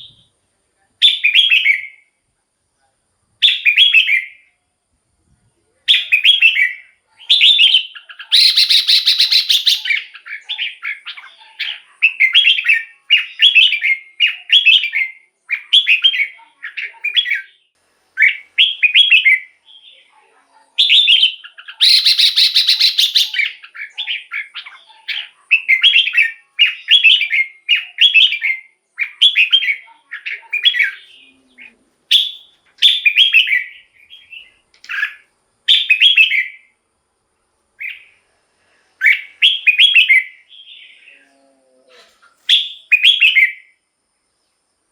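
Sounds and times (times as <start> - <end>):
bird singing whistled phrases: 1.0 - 2.0, 3.4 - 4.4, 5.9 - 20.1, 20.8 - 31.3, 32.1 - 36.7, 39.0 - 41.2, 42.4 - 43.8
harsh bird phrases: 5.9 - 36.7.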